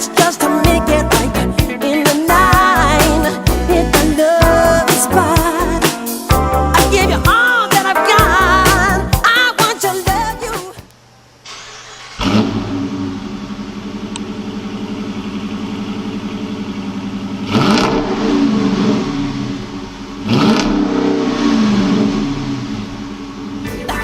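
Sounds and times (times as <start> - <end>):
car engine starting and idling: 0.0 - 7.4, 11.4 - 24.0.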